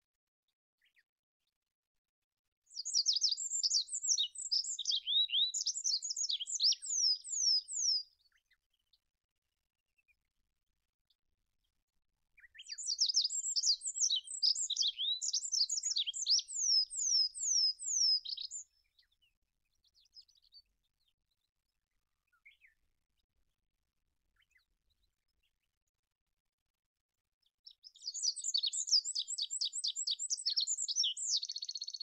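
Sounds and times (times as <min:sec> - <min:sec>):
bird singing trilled song: 0:02.7 - 0:08.9, 0:12.4 - 0:21.4, 0:27.6 - 0:32.0.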